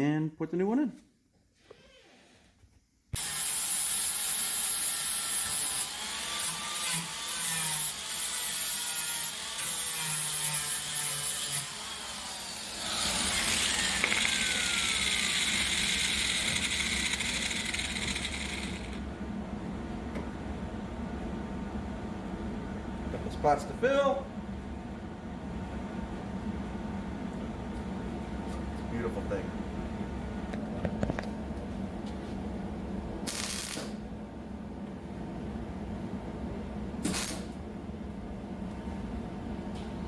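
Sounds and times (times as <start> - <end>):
power tool cutting sheet metal: 3.2 - 19.0.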